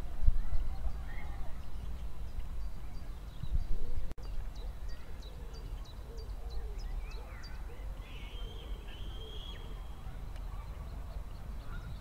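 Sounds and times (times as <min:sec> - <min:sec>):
wind rumbling on microphone: 0:00.0 - 0:05.8, 0:09.6 - 0:12.0
faint bird calls: 0:00.4 - 0:12.0.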